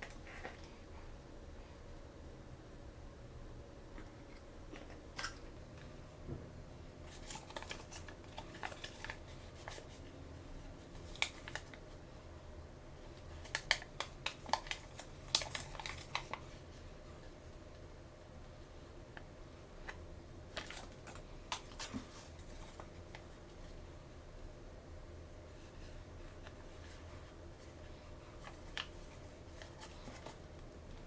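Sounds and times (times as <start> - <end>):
plastic and foil packaging crinkling: 7.1 - 10.1, 10.8 - 11.8, 13.2 - 16.6.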